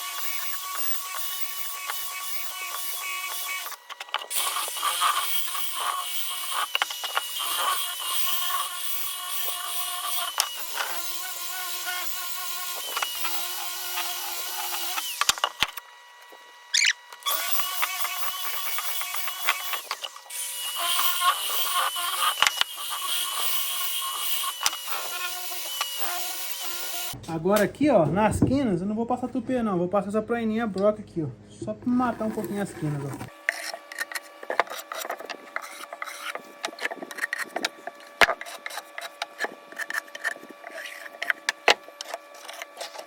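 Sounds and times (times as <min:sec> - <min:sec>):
electric polisher sanding wood: 0:00.0 - 0:27.2, 0:31.9 - 0:43.0.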